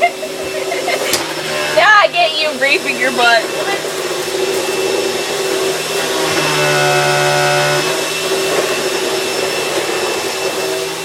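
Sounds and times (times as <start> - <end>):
vacuum cleaner running: 0.0 - 11.0
steady pitched hum: 5.9 - 8.2.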